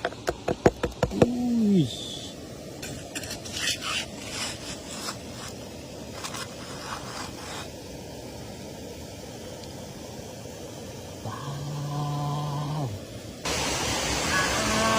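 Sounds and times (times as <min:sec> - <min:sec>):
scraping over rock and gravel: 0:02.8 - 0:07.8.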